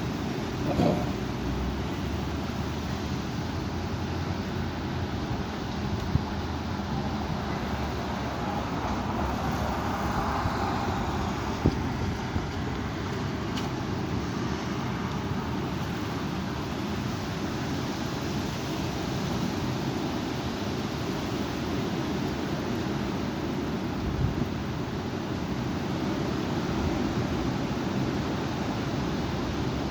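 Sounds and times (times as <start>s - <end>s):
wind blowing against microphone: 0.0s - 2.3s, 5.1s - 14.4s.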